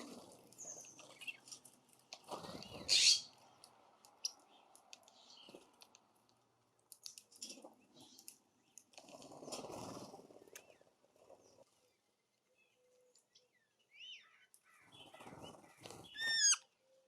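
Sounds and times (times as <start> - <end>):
birds feeding clicks and taps: 0.1 - 10.8, 14.2 - 16.7.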